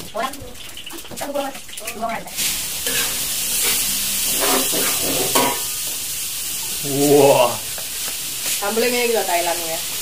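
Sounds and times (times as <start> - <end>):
paste sizzling in hot oil: 0.0 - 10.0
metal spatula scraping pan: 2.8 - 5.8.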